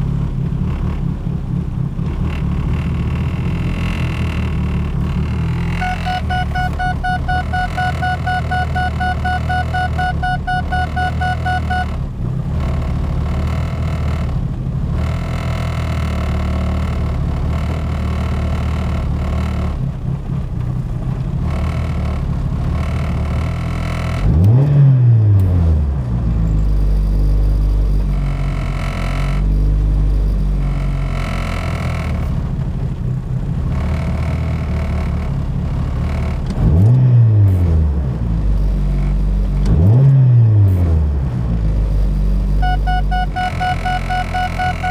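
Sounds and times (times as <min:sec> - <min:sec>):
car engine idling unevenly: 0:00.0 - 0:24.5, 0:25.2 - 0:36.7, 0:40.6 - 0:44.9
pulsing electronic tone: 0:05.6 - 0:12.0, 0:42.6 - 0:44.9.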